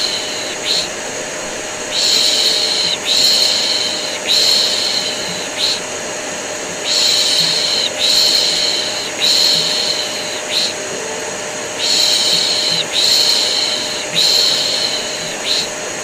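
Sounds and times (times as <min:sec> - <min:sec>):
vacuum cleaner drone: 0:00.0 - 0:16.0
person shushing: 0:06.9 - 0:15.7.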